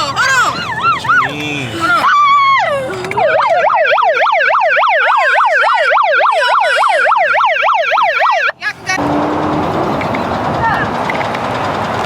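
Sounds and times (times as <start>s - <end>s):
electronic yelp siren: 0.4s - 1.3s, 2.0s - 8.6s.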